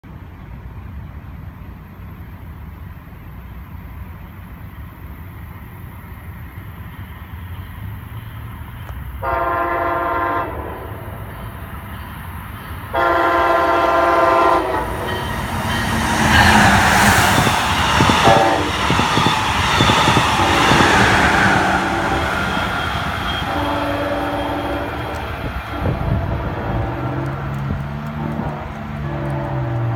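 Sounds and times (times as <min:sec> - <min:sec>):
train wheel and rail noise: 0:00.0 - 0:29.9
train horn blasts: 0:09.2 - 0:11.2, 0:12.9 - 0:29.9
faint horn-like tones: 0:12.9 - 0:16.0, 0:21.9 - 0:27.5.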